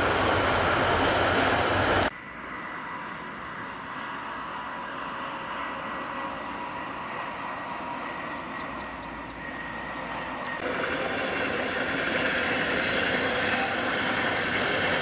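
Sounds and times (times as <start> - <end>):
distant locomotive running noise: 0.0 - 15.0
passenger train rushing past: 0.0 - 15.0.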